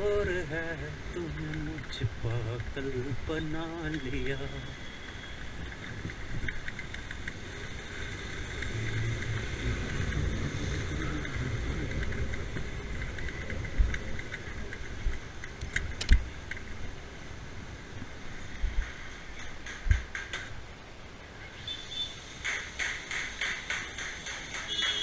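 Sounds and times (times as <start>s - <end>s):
motorbike engine rumble: 0.0s - 17.4s
small clicks: 5.2s - 16.7s
sharp knock: 22.4s - 25.0s.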